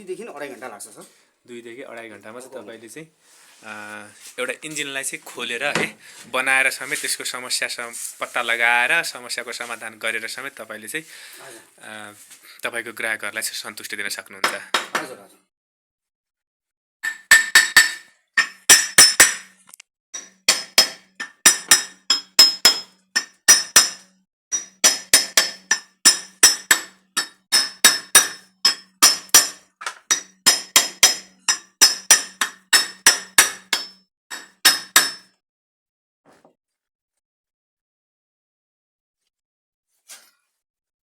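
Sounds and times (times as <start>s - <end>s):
hammer tapping on metal: 20.2s - 35.3s.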